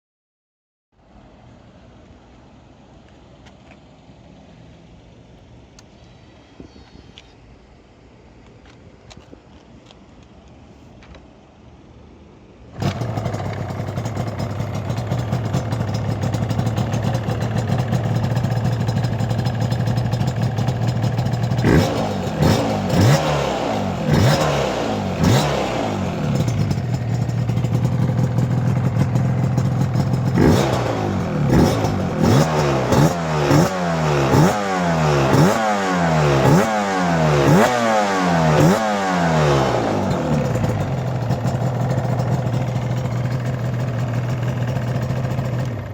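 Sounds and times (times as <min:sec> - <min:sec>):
motorcycle engine idling and revving: 0:12.7 - 0:45.9
two-stroke engine starting: 0:12.8 - 0:35.7, 0:36.3 - 0:45.9.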